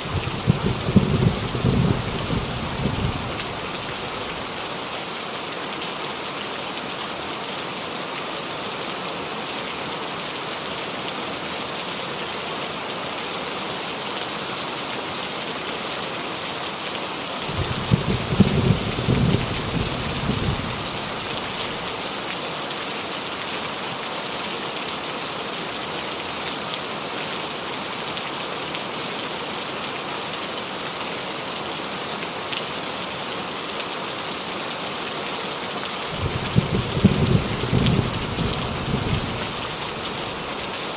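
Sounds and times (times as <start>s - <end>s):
rain falling on a roof: 0.0s - 40.9s
thunder rumbling: 0.1s - 4.1s, 17.5s - 21.8s, 36.2s - 40.5s.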